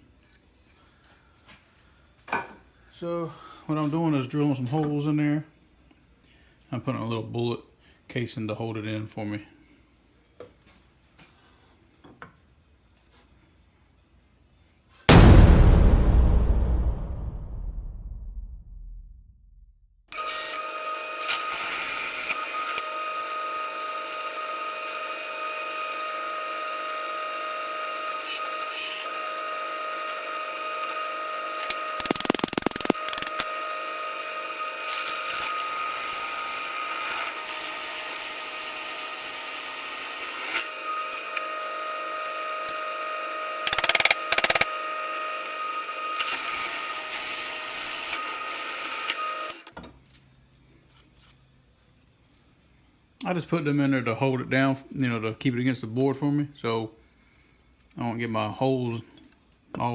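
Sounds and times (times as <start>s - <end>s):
electric drill boring wood: 20.1s - 49.7s.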